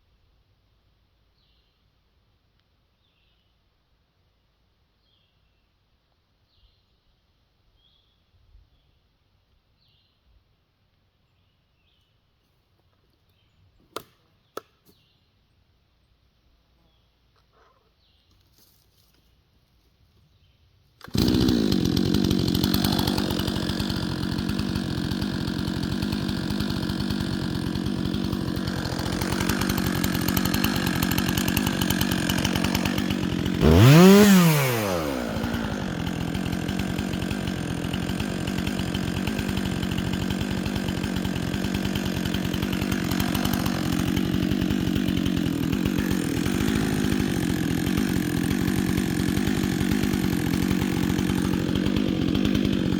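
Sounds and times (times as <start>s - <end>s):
chainsaw running: 21.0s - 52.9s.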